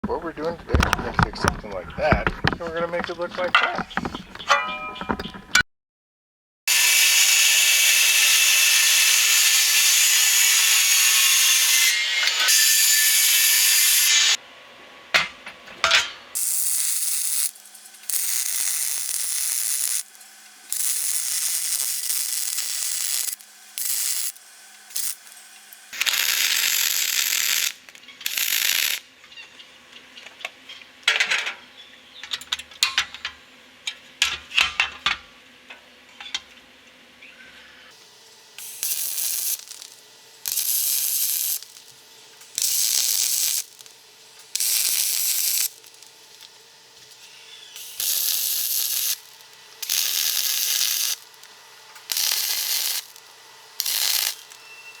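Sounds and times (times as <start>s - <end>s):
tool handling clicks and knocks: 0.7s - 5.6s.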